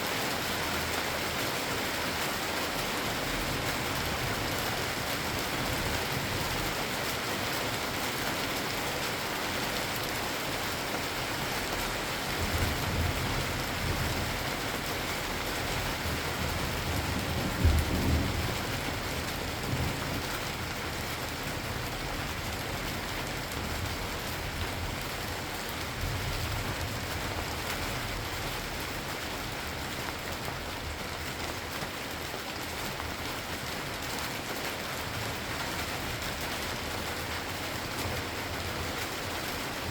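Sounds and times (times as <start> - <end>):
steady rain falling: 0.0 - 39.9
thunder rumbling: 17.2 - 20.0.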